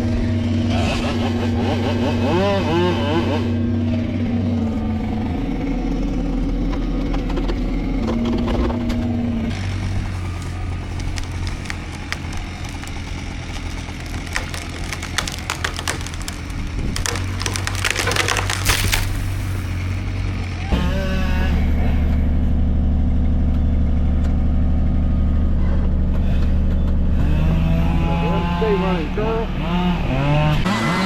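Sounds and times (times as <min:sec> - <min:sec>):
diesel engine running: 0:00.0 - 0:30.6
wood cracking and splintering: 0:07.2 - 0:20.6.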